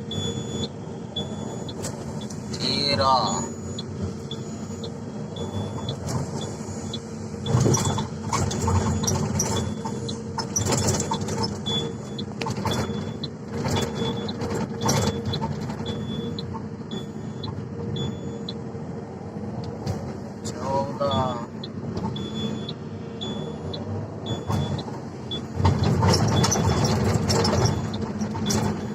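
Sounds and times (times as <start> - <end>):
excavator diesel engine running: 0.0 - 28.9
knocks and clatter: 24.4 - 28.9.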